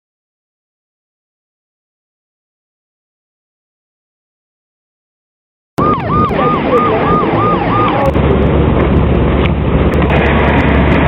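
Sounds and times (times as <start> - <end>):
police siren yelping: 5.8 - 8.2
vehicle and road noise: 5.8 - 11.0.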